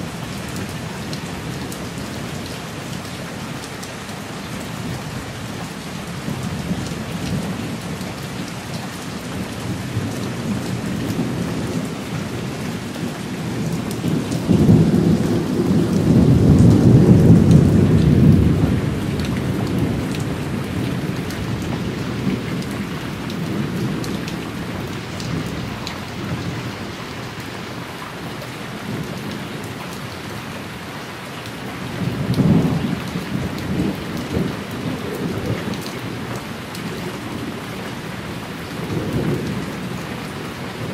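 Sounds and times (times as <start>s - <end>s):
heavy rain falling: 0.0s - 40.9s
thunder rumbling: 9.3s - 26.9s.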